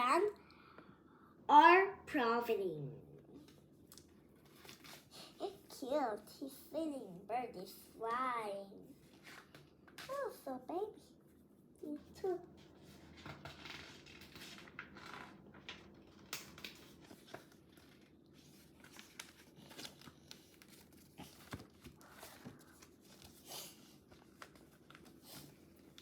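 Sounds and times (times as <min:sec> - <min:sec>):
book pages rustling and turning: 0:03.4 - 0:05.7, 0:08.8 - 0:10.6, 0:11.8 - 0:26.0.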